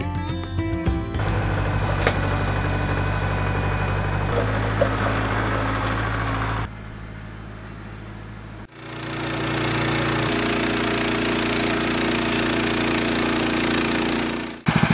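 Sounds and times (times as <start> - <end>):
sawmill engine cutting log: 1.2 - 6.7, 8.7 - 14.9.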